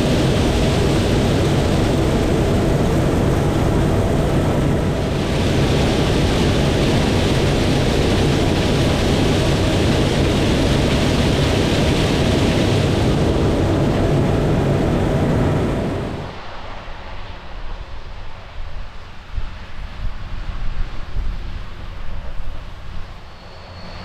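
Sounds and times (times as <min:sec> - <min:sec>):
harvester mechanical rushing noise: 0:00.0 - 0:16.4
low diesel engine hum: 0:00.0 - 0:16.4.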